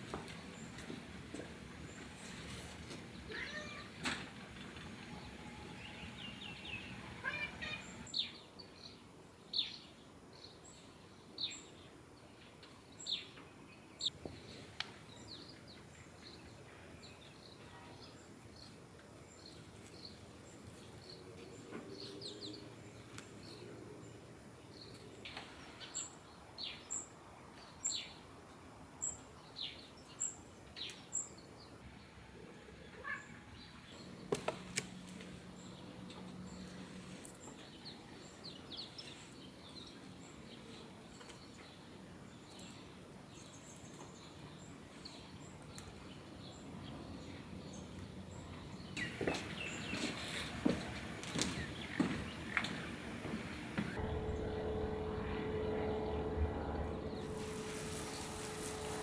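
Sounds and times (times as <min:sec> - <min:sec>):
ambient hiss: 0:04.5 - 0:08.1, 0:49.0 - 0:59.0
bird descending chirps: 0:53.8 - 0:59.0.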